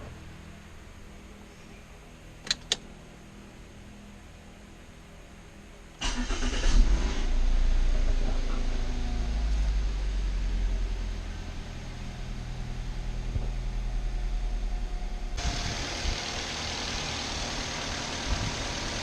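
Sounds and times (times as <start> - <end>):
car engine idling: 6.1 - 19.0.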